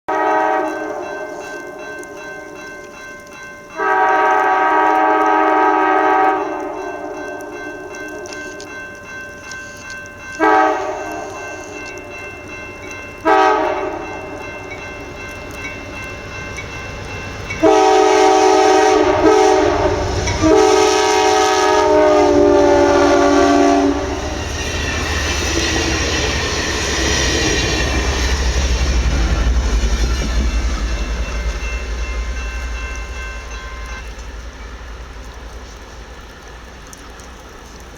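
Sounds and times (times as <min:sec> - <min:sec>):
train horn blasts: 0:00.1 - 0:02.5, 0:03.7 - 0:08.6, 0:10.4 - 0:11.8, 0:13.2 - 0:14.8, 0:17.5 - 0:25.9
train rumble and wheel clatter: 0:00.1 - 0:37.9.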